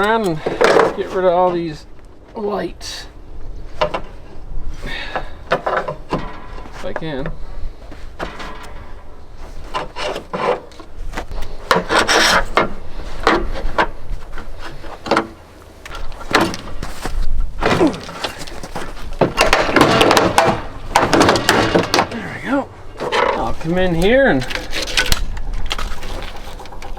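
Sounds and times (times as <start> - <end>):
scraping and knocking on metal: 3.7 - 22.2.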